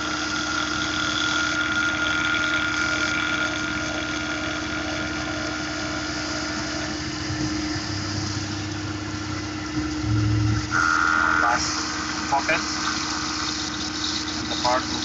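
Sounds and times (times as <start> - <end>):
milling machine whine: 0.0 - 15.0
low hum: 5.7 - 15.0.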